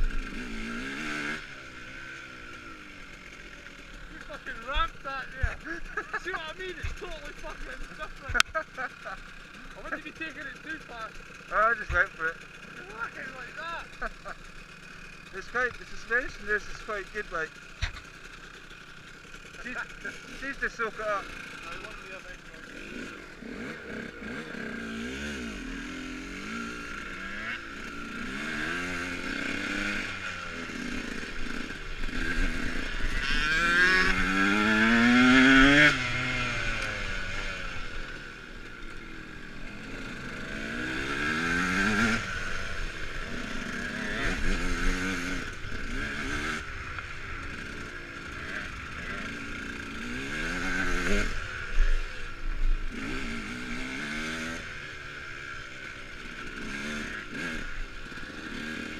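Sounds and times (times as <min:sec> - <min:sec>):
electric dirt bike motor whining: 0:00.0 - 0:10.0, 0:17.5 - 0:58.9.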